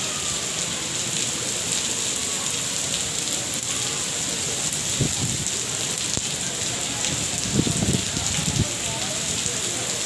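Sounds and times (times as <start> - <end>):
rain pattering: 0.0 - 10.0.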